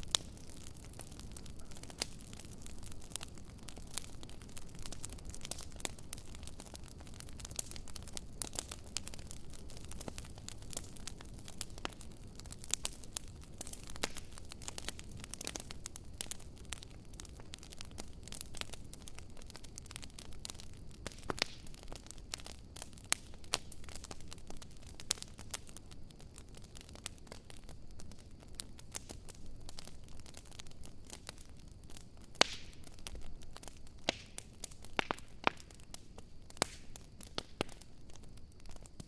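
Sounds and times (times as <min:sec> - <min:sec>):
low fire rumble: 0:00.0 - 0:39.0
wood fire crackling and popping: 0:00.0 - 0:39.0.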